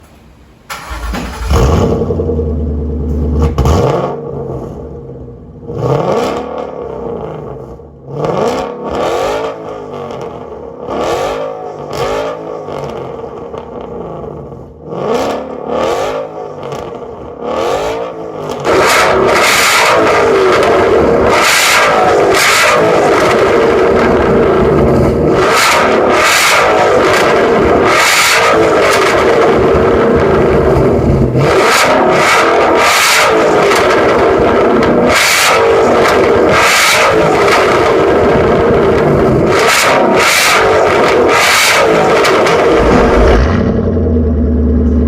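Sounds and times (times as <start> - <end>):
car engine revving: 0.1 - 45.0
loud steady rush: 37.2 - 44.9.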